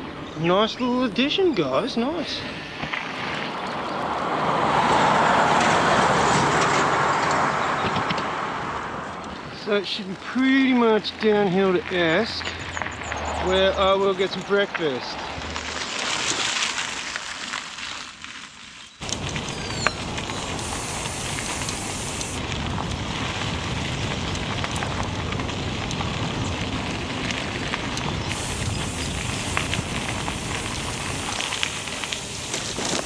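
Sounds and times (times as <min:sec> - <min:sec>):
tyres crackling over road: 0:00.0 - 0:33.0
wind rushing over microphone: 0:19.0 - 0:33.0.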